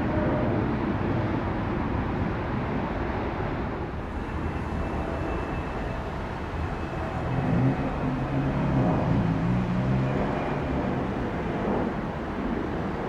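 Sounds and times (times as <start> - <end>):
jet engines rumbling: 0.1 - 13.0
faint high whine: 4.0 - 8.5.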